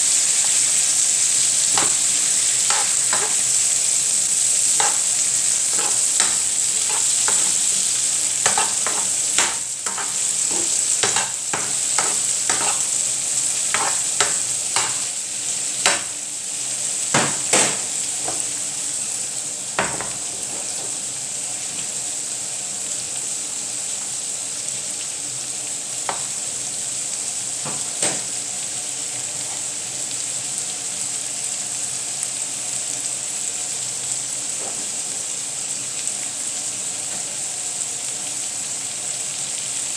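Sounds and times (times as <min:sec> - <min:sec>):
food sizzling in a pan: 0:00.0 - 0:39.9
utensil scraping and tapping pan: 0:01.7 - 0:03.5, 0:04.8 - 0:07.8, 0:08.4 - 0:13.0, 0:13.7 - 0:15.1, 0:15.9 - 0:16.1.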